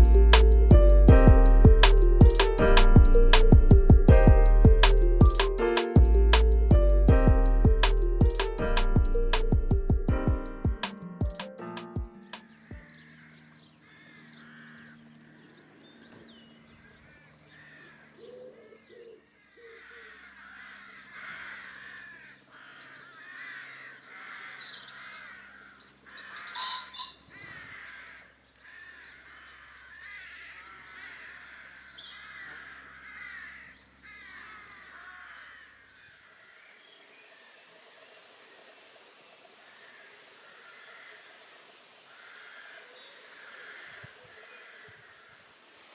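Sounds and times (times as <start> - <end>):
crows cawing: 11.2 - 15.4, 16.8 - 36.8, 39.7 - 41.3, 42.0 - 45.6.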